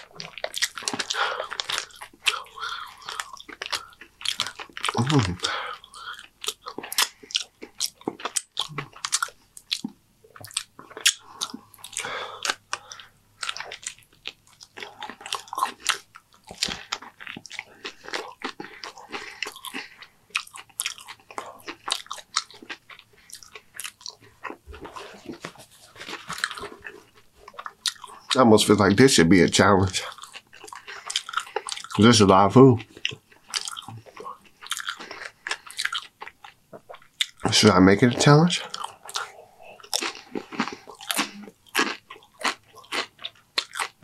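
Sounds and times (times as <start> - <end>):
person chewing crunchy chips: 0.0 - 28.4, 29.6 - 44.0
wet mouth sounds: 0.0 - 28.4, 32.9 - 44.0.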